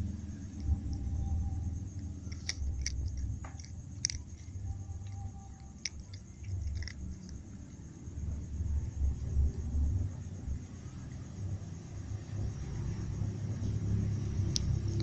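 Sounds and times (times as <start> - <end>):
low steady rumble: 0.0 - 15.0
sharp crunching clicks: 0.5 - 7.8
cat chewing food: 2.0 - 7.8.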